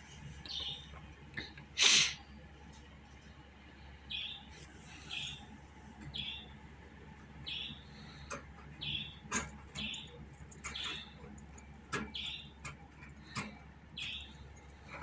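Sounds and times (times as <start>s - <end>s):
budgerigar chirping: 7.4s - 8.0s, 8.8s - 11.3s.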